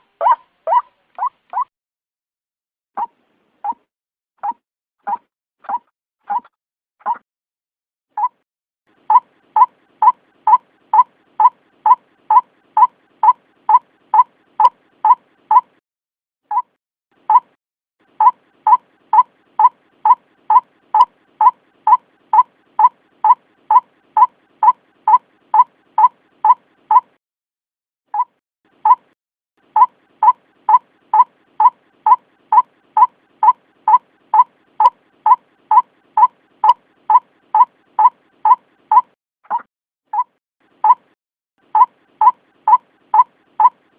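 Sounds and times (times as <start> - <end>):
recorded bird call kwak notes: 0.0 - 1.7, 9.0 - 15.8, 16.5 - 27.2, 28.1 - 43.9.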